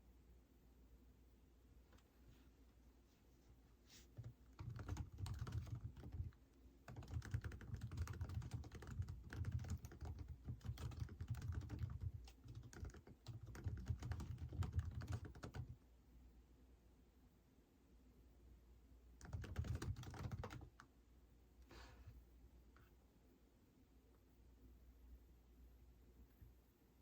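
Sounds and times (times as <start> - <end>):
typing on computer keyboard: 4.2 - 15.8, 19.2 - 20.9.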